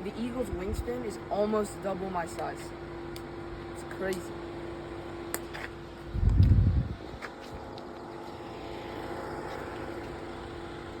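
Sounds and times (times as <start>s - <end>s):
steady hum with held tone: 0.0s - 11.0s
loud low rumble: 6.1s - 7.1s.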